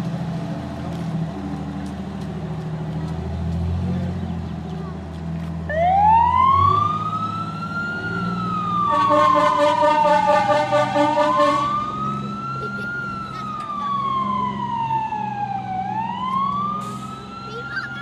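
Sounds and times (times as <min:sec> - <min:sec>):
truck engine rumble: 0:00.0 - 0:18.0
fire engine siren wailing: 0:05.6 - 0:18.0
pulsing horn: 0:08.8 - 0:12.0.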